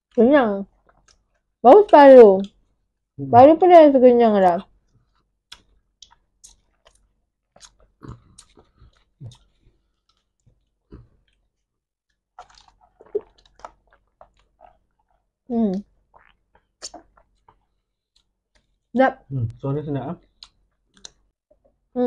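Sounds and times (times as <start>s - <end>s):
wet mouth clicks and lip smacks: 0.7s - 1.5s, 5.1s - 11.4s, 12.4s - 18.7s, 20.3s - 21.6s
burger being chewed: 5.0s - 11.5s, 12.4s - 15.3s
sipping drinks through straws: 12.4s - 14.9s.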